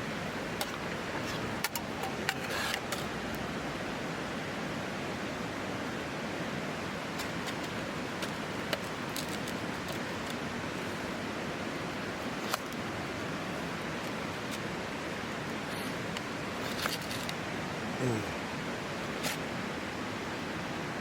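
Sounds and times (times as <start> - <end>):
campfire crackling: 6.7 - 18.2.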